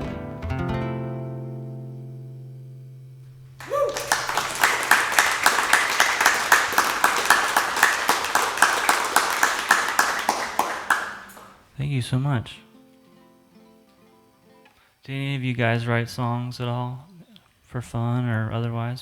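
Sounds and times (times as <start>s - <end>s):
acoustic guitar chord ringing: 0.0s - 3.6s
audience cheer: 3.6s - 11.6s
audience applause: 3.6s - 11.7s.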